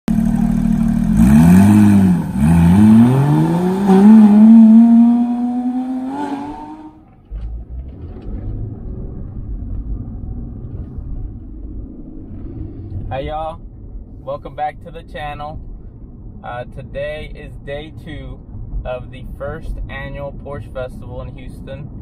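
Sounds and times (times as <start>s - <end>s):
sports car engine accelerating: 0.1s - 13.0s
low rumble: 6.6s - 22.0s.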